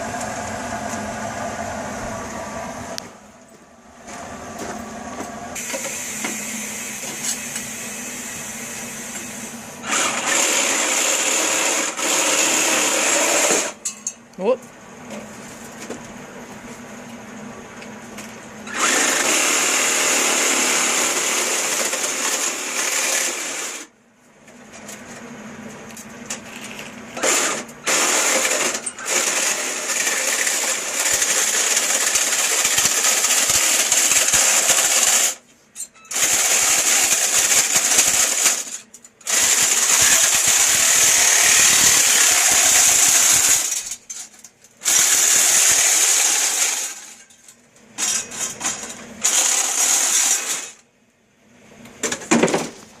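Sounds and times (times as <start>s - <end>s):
power tool running: 4.2s - 13.8s, 18.6s - 23.9s, 26.6s - 35.4s, 36.1s - 44.0s, 44.8s - 47.1s, 49.2s - 50.8s.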